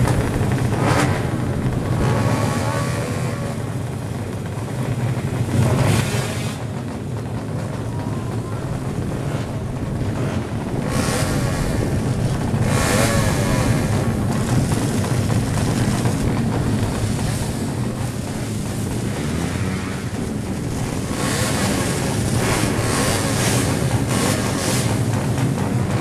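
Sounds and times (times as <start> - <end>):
motorcycle engines racing: 0.0 - 26.0
wind buffeting microphone: 7.2 - 26.0.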